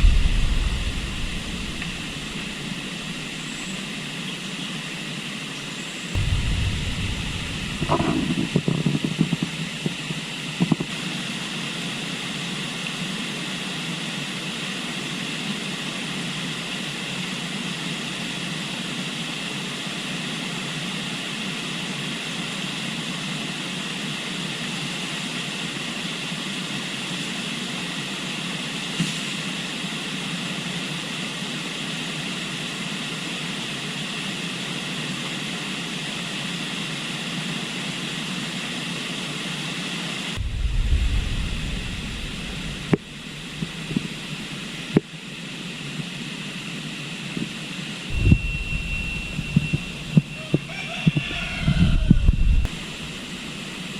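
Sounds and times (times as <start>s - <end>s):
river rushing: 0.0s - 4.1s, 40.4s - 44.9s.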